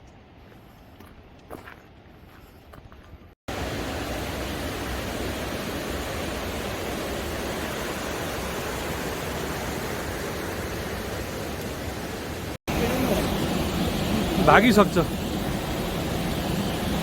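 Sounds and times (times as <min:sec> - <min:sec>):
rushing water: 0:03.5 - 0:17.0.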